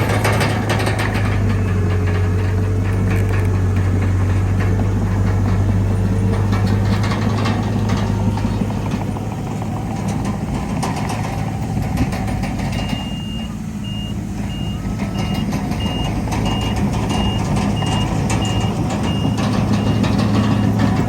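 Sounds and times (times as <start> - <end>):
diesel machinery engine hum: 0.0 - 21.0
metal clanks and clicks: 14.4 - 21.0.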